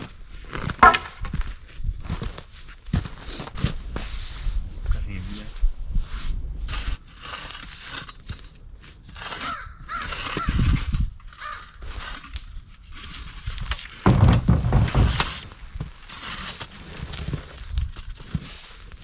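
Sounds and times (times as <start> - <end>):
rustling and crunching: 0.0 - 19.0
harsh cawing calls: 9.4 - 10.5, 11.4 - 11.7.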